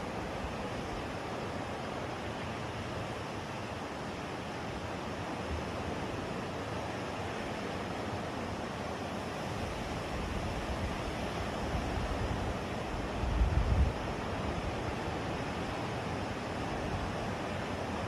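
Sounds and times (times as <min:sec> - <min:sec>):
wind rumbling on microphone: 0:10.1 - 0:14.8.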